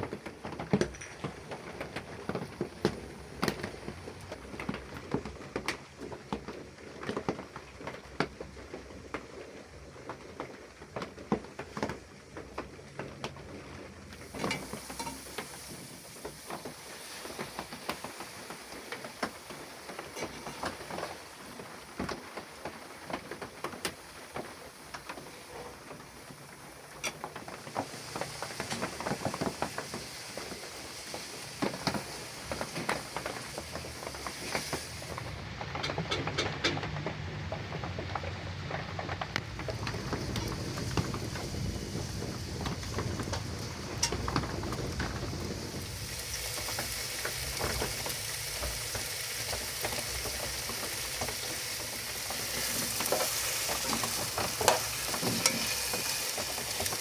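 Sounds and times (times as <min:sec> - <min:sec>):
kitchen utensils clicking and knocking: 0:00.7 - 0:02.2, 0:14.2 - 0:15.9, 0:20.0 - 0:21.2, 0:47.2 - 0:57.0
steady hiss: 0:14.0 - 0:36.0, 0:39.4 - 0:57.0.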